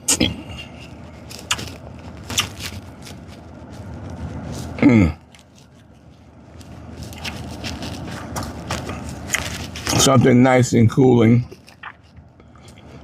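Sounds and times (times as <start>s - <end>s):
person humming mmm: 4.8s - 5.4s.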